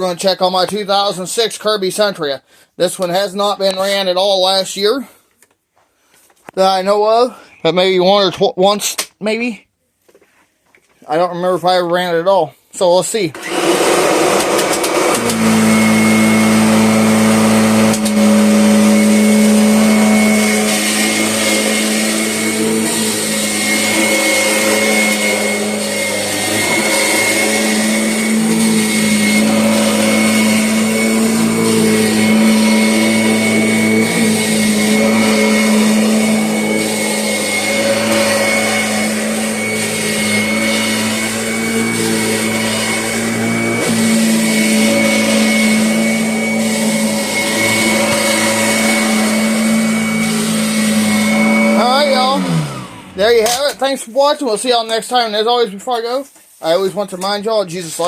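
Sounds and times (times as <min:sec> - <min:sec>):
vacuum cleaner running: 0:13.4 - 0:54.4.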